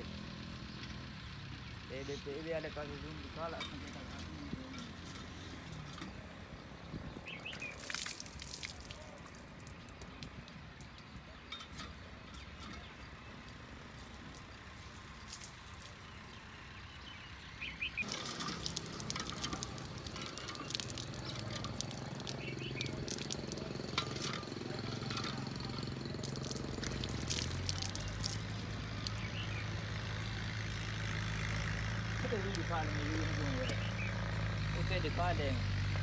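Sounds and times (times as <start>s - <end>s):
clicks and clatter: 18.0s - 29.8s.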